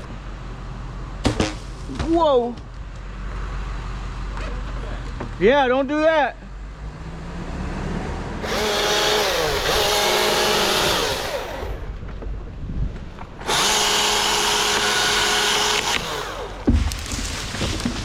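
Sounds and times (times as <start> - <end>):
chainsaw cutting wood: 8.4 - 11.9, 13.4 - 18.0.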